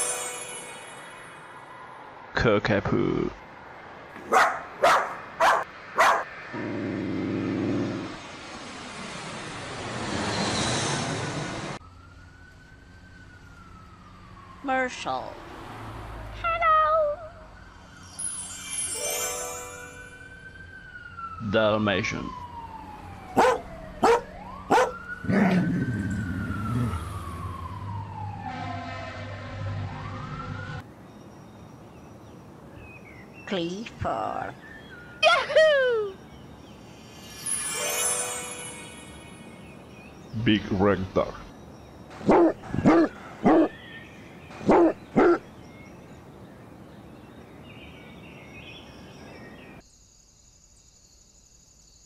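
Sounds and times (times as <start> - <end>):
dog barking: 4.2 - 6.3, 23.4 - 25.0, 42.2 - 43.8, 44.6 - 45.4
fire engine siren wailing: 10.5 - 18.2, 19.8 - 30.8
crickets chirping: 17.4 - 19.3, 43.6 - 52.0
birds chirping: 23.2 - 27.1, 30.8 - 49.8.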